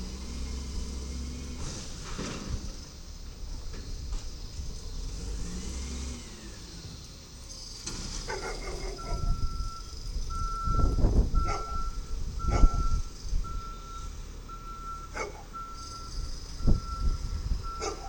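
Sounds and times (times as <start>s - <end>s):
truck engine running: 0.0s - 18.0s
truck backup alarm beeping: 8.4s - 18.0s.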